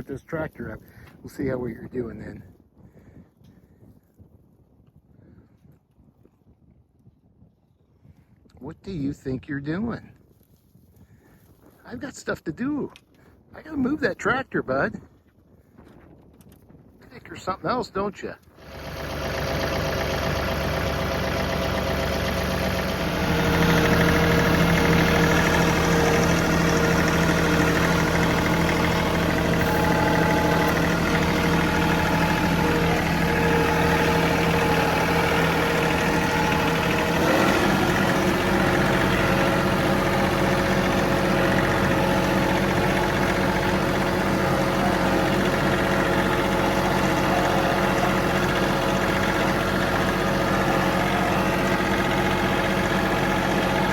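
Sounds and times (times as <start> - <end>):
tractor diesel engine running: 0.0 - 2.6, 17.1 - 53.9.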